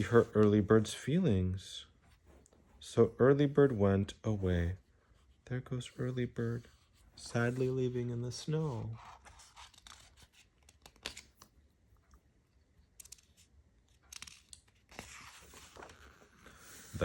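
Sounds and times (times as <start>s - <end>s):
paper pages rustling: 6.4s - 11.6s, 13.0s - 17.0s.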